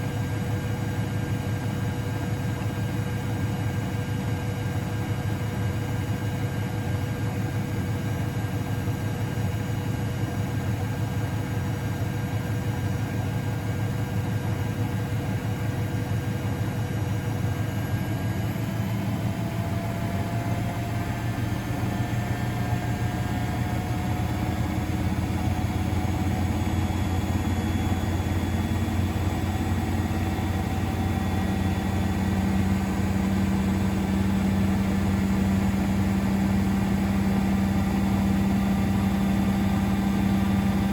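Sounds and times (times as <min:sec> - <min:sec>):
washing machine motor rising pitch: 0:17.7 - 0:40.9.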